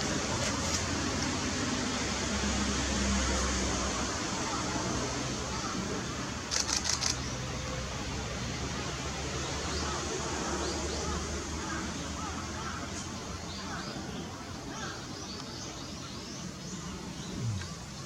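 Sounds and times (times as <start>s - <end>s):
small birds chirping: 12.6s - 18.0s
low hum: 17.2s - 18.0s.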